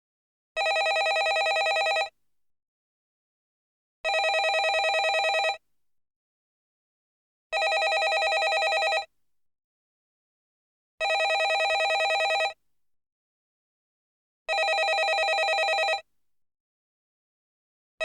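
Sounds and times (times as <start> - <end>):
telephone ringing: 0.6 - 2.1, 4.1 - 5.6, 7.6 - 9.1, 11.0 - 12.6, 14.5 - 16.0.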